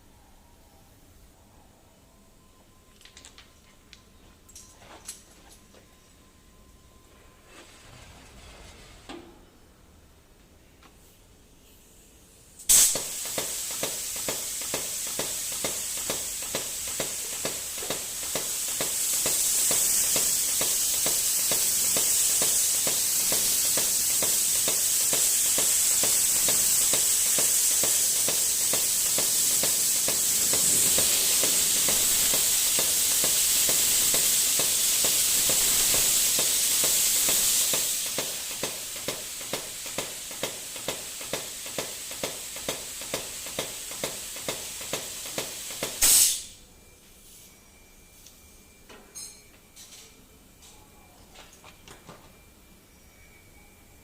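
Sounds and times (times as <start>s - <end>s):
compressed air mist hissing: 12.7s - 46.6s.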